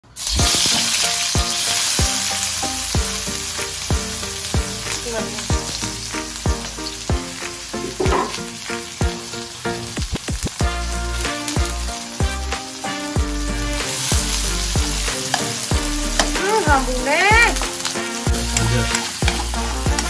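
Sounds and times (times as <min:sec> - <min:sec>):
food sizzling in a pan: 0:00.0 - 0:20.0
music with drum beat and bass: 0:00.3 - 0:20.0.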